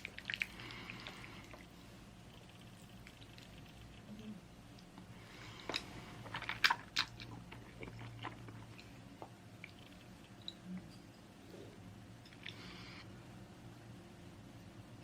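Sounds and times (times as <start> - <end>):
chewing: 0.0 - 4.3, 5.4 - 11.0.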